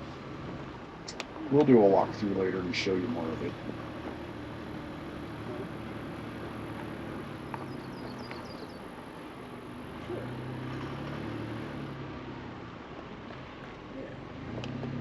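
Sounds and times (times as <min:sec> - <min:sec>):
tyres rolling over dirt: 0:00.0 - 0:15.0
vehicle engine running low: 0:00.0 - 0:15.0
faint high chirps: 0:07.4 - 0:08.9.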